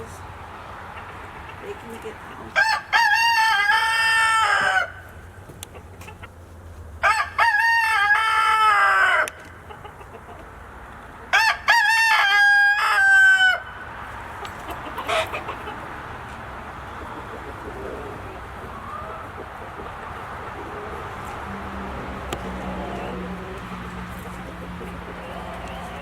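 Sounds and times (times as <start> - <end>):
rooster crowing: 2.6 - 5.1, 7.0 - 9.4, 11.3 - 13.8, 17.6 - 19.4, 20.6 - 26.0.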